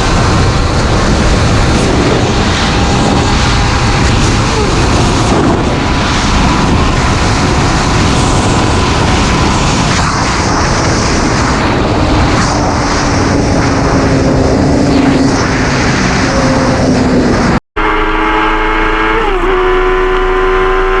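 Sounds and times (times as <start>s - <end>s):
motorcycle engine running: 0.0s - 15.6s
wind rush over microphone: 0.0s - 18.2s.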